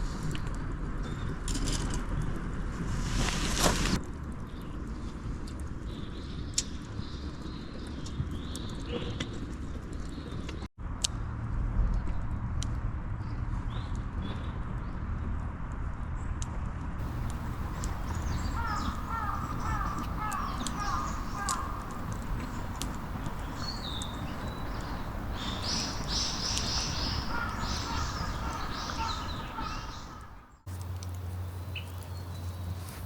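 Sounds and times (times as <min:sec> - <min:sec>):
harsh bird calls: 0:17.0 - 0:30.6
low background rumble: 0:17.0 - 0:32.8
birds chirping: 0:17.0 - 0:33.0.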